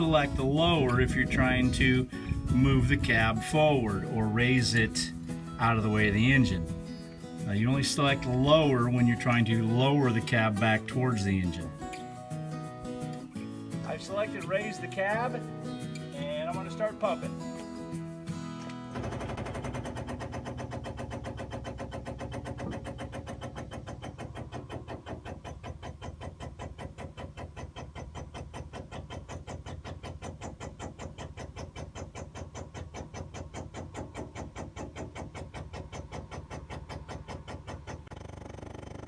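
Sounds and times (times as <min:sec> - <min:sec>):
hydraulic pump pulsing hum: 0:19.0 - 0:39.0.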